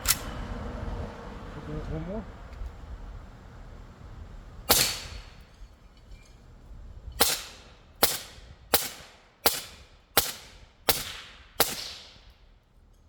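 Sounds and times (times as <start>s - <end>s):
suppressed rifle shots: 4.7s - 5.4s, 7.2s - 12.2s.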